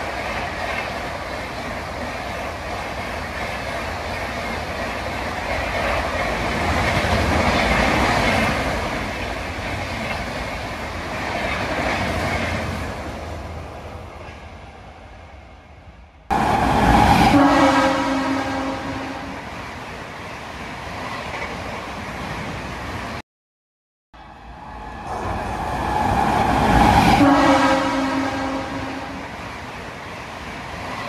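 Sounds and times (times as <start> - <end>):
train coaches rushing past: 16.3 - 23.2, 24.2 - 31.0
train horn chord: 17.2 - 19.4, 27.2 - 29.2.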